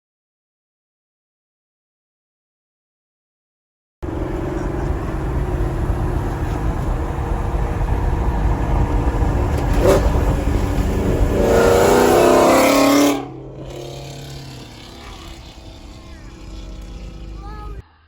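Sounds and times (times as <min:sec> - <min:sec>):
car engine revving: 0:04.0 - 0:17.8
car engine rumbling: 0:04.0 - 0:17.8.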